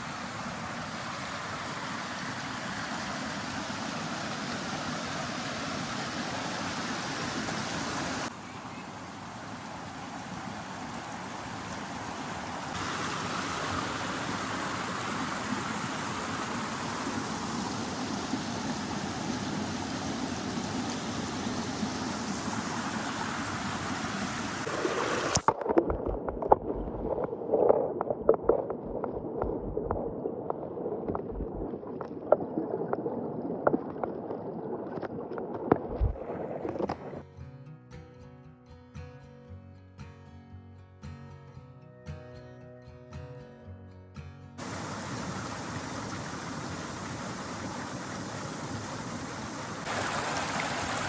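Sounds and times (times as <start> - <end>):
water gurgling and splashing: 0.0 - 8.3, 8.9 - 37.2, 44.6 - 51.0
creek rushing: 0.0 - 32.2, 44.6 - 51.0.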